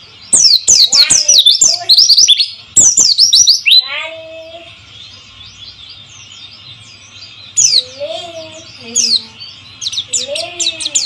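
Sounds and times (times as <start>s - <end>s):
bird song with rapid high notes: 0.0s - 11.0s
faint bird twittering: 0.0s - 11.0s.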